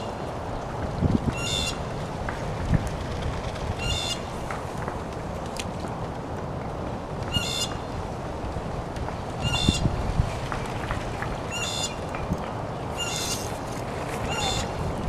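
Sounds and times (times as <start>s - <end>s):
steady rushing noise: 0.0s - 15.0s
bird harsh call: 13.0s - 13.6s, 14.2s - 14.8s.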